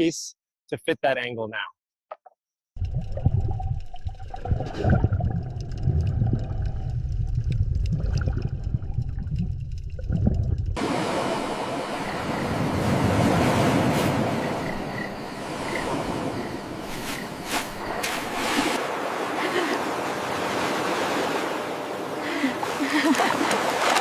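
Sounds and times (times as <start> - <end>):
rushing water: 10.8 - 24.0.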